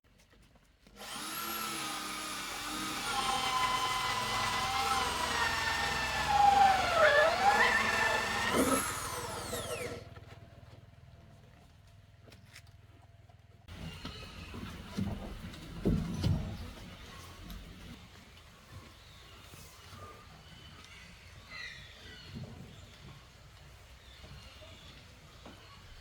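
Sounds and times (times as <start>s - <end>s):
power tool motor whining: 1.0s - 10.1s.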